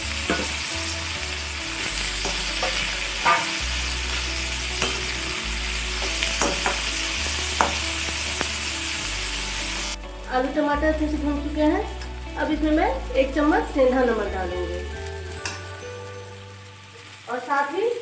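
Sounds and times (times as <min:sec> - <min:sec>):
vegetables sizzling in a pan: 0:00.0 - 0:18.0
metal spatula scraping a pan: 0:00.1 - 0:10.0.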